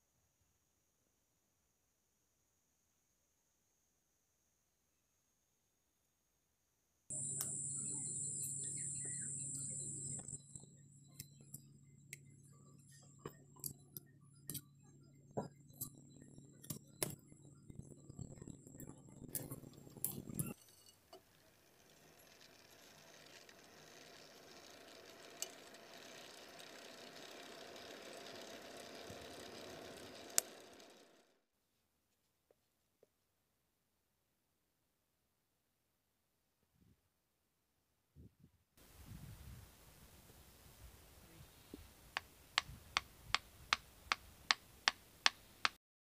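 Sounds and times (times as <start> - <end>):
high whine with low hum: 7.1 - 20.8.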